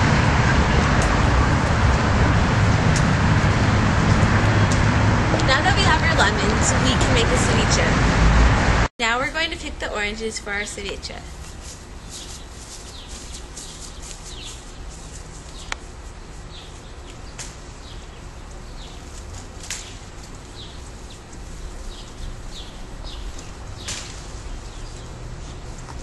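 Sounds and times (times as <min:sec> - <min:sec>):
steady low rumble: 0:00.0 - 0:26.0
small bird chirping: 0:11.5 - 0:15.9.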